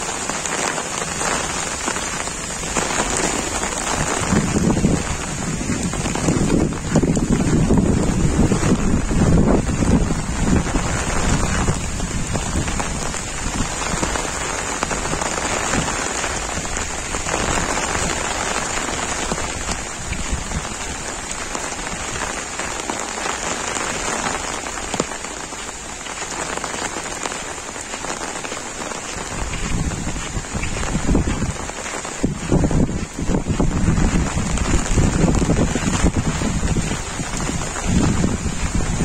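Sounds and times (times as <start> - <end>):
heavy rain falling: 0.0 - 39.0.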